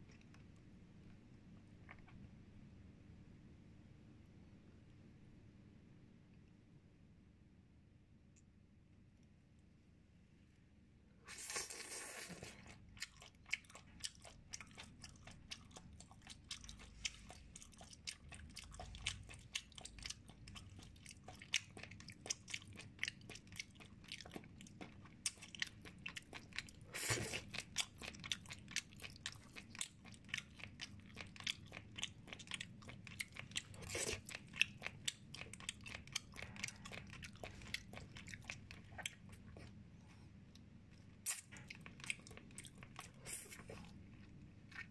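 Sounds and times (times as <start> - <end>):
wet chewing and crunching: 11.3 - 39.8, 40.5 - 44.9.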